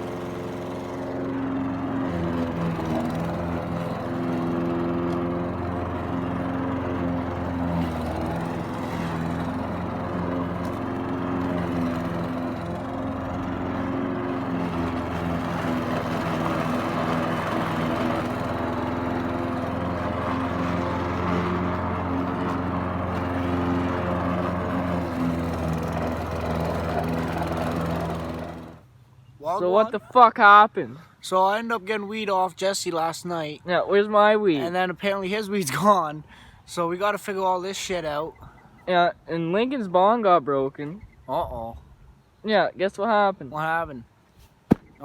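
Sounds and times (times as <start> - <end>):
lawn mower engine running: 0.0 - 29.6.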